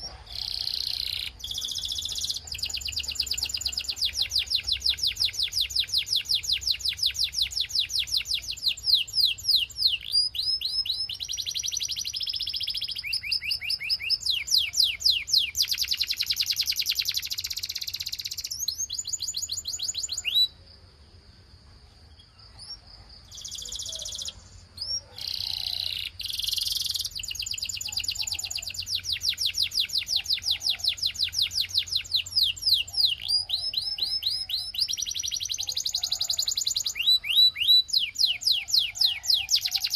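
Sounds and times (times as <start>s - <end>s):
canary singing trills: 0.0s - 20.7s, 22.0s - 39.9s.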